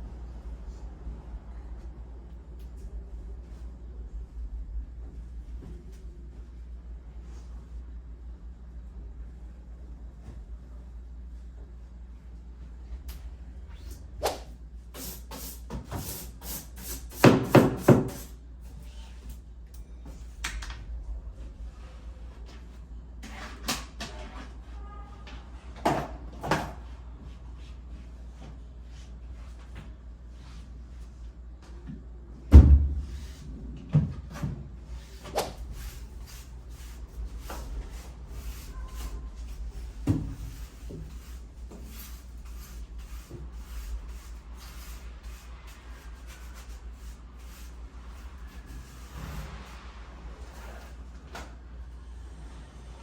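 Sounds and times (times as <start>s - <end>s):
low steady hum: 0.0s - 15.0s, 18.4s - 25.8s
heavy thump: 32.5s - 33.2s.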